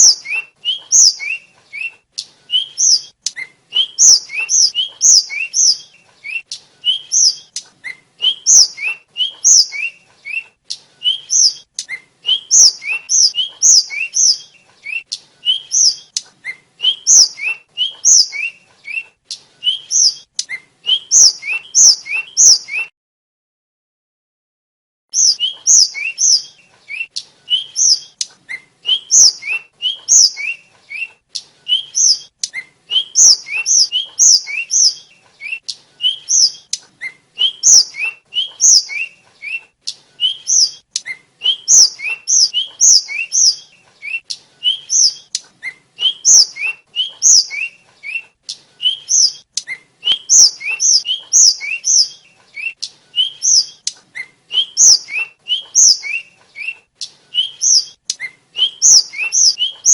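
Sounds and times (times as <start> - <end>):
flycatcher singing high chirps: 0.0 - 1.4, 2.6 - 7.6, 8.2 - 10.0, 11.1 - 16.2, 16.8 - 18.6, 20.9 - 22.9, 25.2 - 26.5, 27.5 - 28.2, 28.9 - 30.6, 32.9 - 35.0, 37.4 - 39.2, 40.2 - 40.8, 41.4 - 43.7, 44.7 - 45.4, 46.0 - 47.8, 48.9 - 49.5, 50.1 - 53.8, 54.5 - 56.3, 57.4 - 58.0, 58.6 - 59.9.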